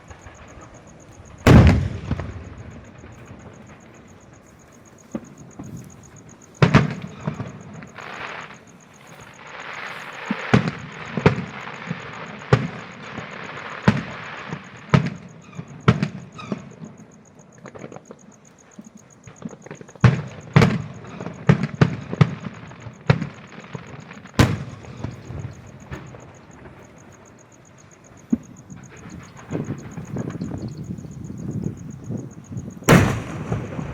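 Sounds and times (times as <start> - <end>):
fireworks hissing: 0.0 - 14.8
fireworks bangs: 0.0 - 17.0, 19.3 - 33.9.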